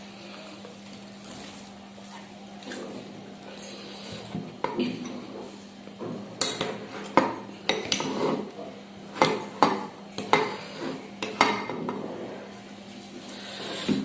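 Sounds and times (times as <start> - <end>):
metal spoon scraping cooking pot: 6.4 - 8.5.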